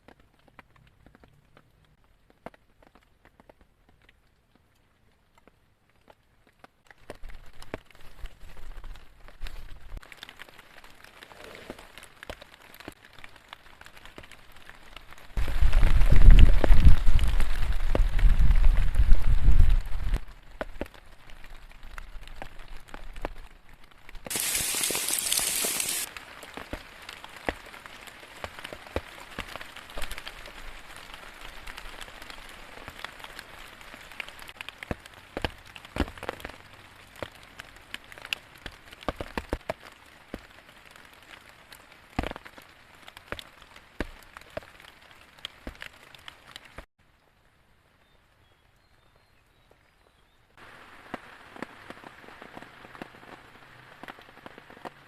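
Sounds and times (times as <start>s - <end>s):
rain drops ticking: 0.0s - 11.3s, 11.9s - 48.0s, 50.5s - 55.0s
burst of hiss: 24.3s - 26.1s.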